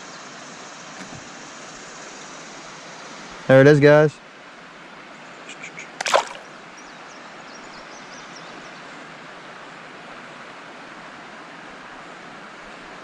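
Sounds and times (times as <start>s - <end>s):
river water rushing: 6.0s - 6.7s.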